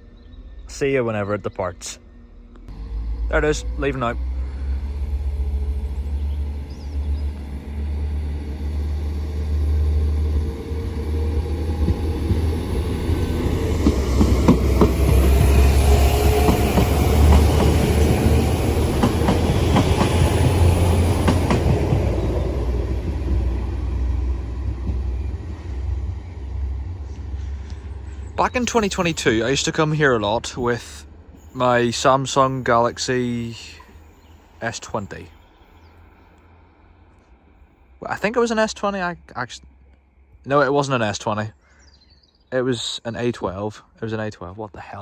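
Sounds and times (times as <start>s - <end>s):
train engine rumble: 0.0s - 41.5s
wheels clicking over rail joints: 11.4s - 23.6s.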